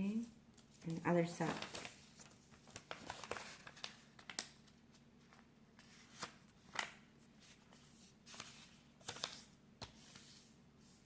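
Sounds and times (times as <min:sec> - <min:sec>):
paper rustling and crinkling: 0:00.2 - 0:11.0.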